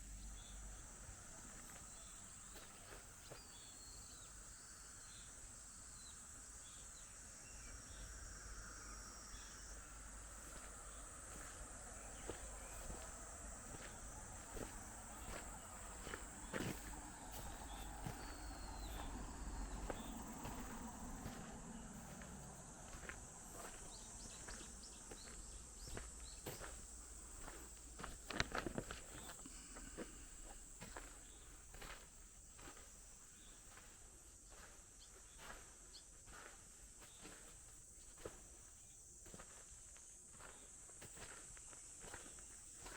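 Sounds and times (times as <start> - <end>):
insects chirring: 0.0 - 42.9
footsteps: 10.4 - 32.8.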